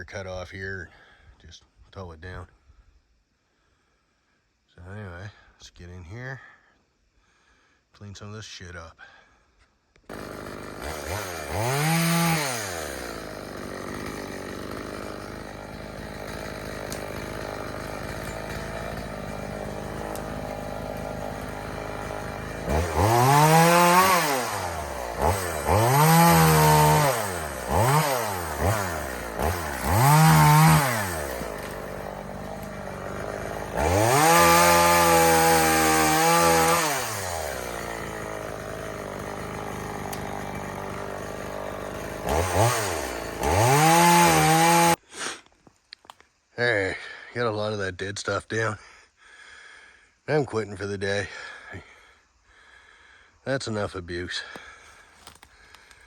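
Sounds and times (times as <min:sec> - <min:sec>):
chainsaw idling and revving: 0:10.1 - 0:45.0, 0:54.4 - 0:56.0.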